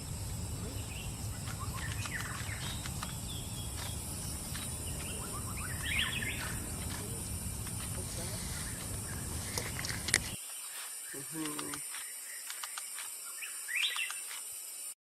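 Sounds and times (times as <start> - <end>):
steady low rumble: 0.0 - 10.4
birds chirping: 0.0 - 14.4
constant high hiss: 0.0 - 15.0.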